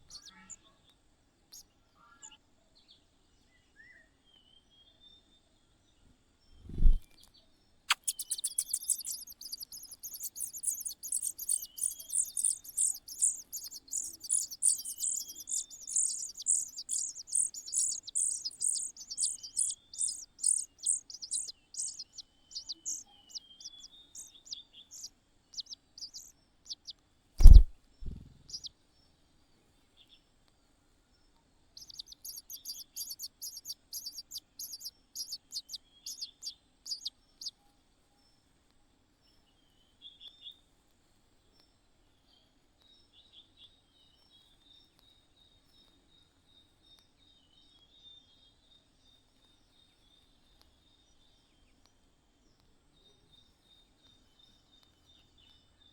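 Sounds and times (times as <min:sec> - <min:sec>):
small birds chirping: 0:00.0 - 0:40.7, 0:41.3 - 0:55.9
loud thump: 0:27.4 - 0:28.4.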